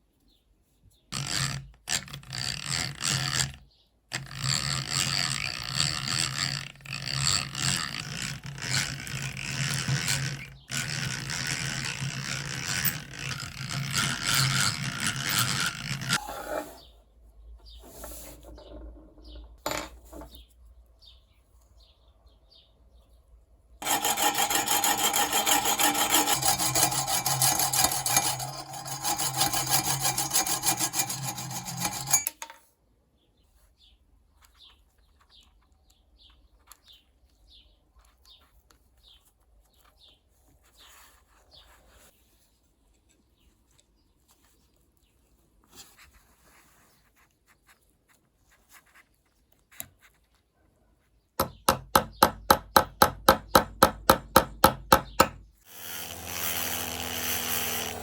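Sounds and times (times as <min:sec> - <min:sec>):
abrasive rasping on knife: 0:23.8 - 0:32.4.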